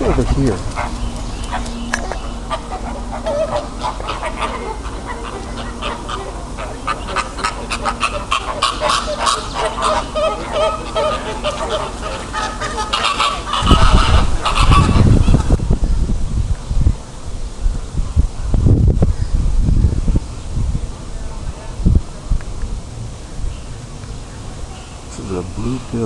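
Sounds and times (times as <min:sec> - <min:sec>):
large birds honking: 0:00.0 - 0:15.8, 0:22.8 - 0:26.0.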